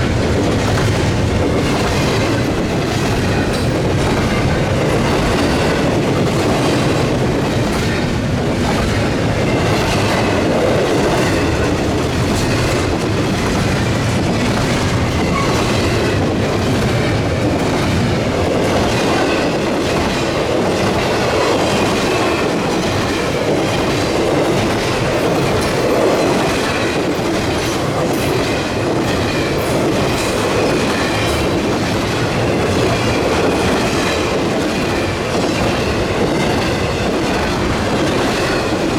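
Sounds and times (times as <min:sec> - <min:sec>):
freight train cars rumbling past: 0:00.0 - 0:38.9
wheels clicking over rail joints: 0:00.0 - 0:38.9.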